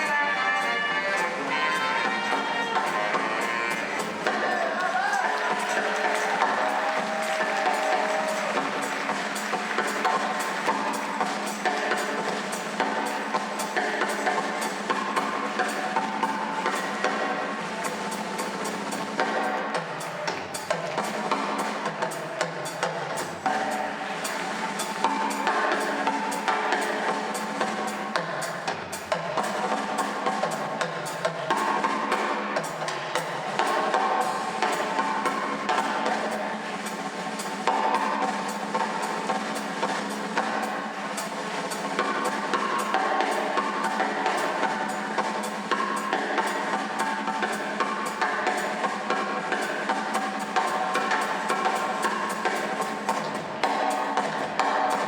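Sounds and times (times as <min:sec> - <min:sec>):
brass horns playing: 0:00.0 - 0:11.8
drum kit beat: 0:00.0 - 0:55.0.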